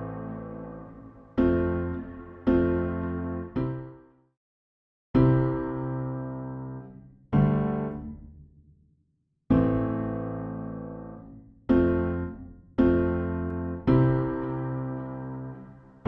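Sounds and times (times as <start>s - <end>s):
keyboard chords with delay: 0.0s - 4.0s.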